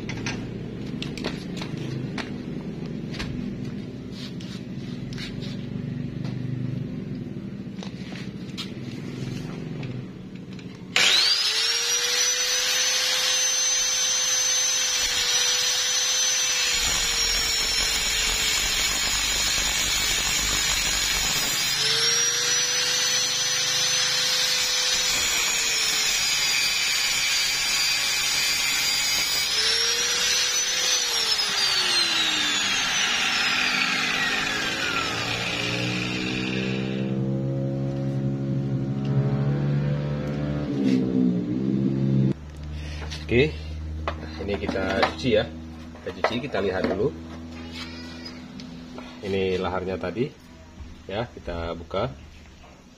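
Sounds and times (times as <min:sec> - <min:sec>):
angle grinder cutting metal: 0:10.7 - 0:39.2.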